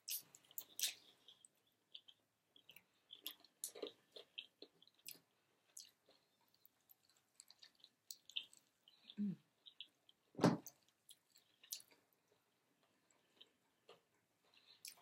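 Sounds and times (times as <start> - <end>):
chewing and lip-smacking: 0.0 - 15.0.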